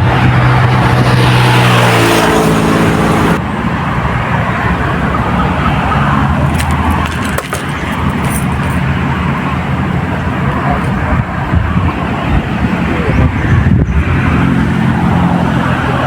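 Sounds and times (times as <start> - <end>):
motor engine running loud: 0.0 - 3.7
steady background noise: 0.0 - 16.0.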